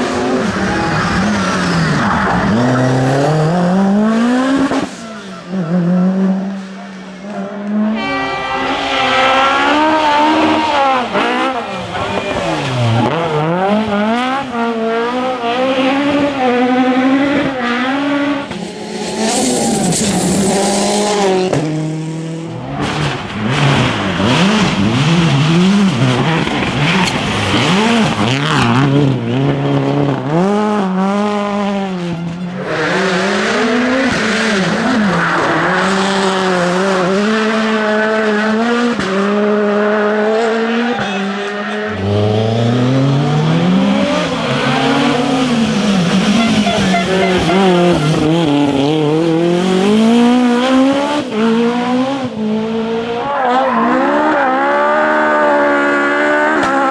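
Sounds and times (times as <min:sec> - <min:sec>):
rally car engines revving: 0:00.0 - 0:56.9
engine note climbing: 0:07.9 - 0:21.6.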